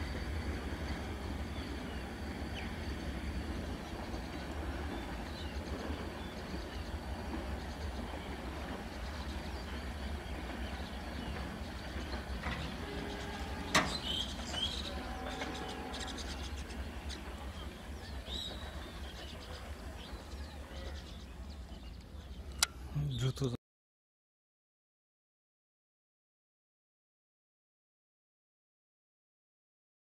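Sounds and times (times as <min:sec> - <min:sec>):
passenger train rumble: 0:00.0 - 0:23.5
birds chirping: 0:00.1 - 0:23.6.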